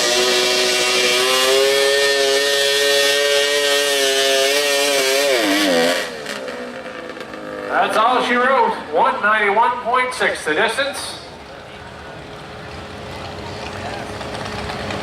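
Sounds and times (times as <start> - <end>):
high-revving engine under load: 0.0 - 8.9.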